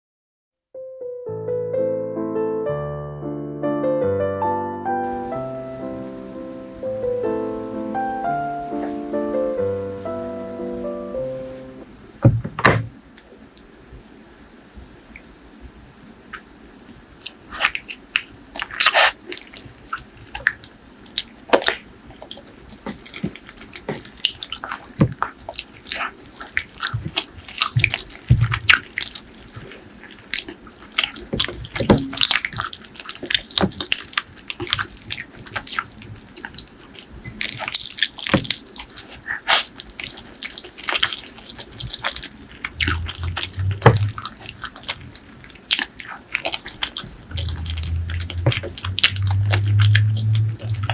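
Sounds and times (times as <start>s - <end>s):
chewing: 16.3s - 50.9s
wet mouth sounds: 17.2s - 50.9s.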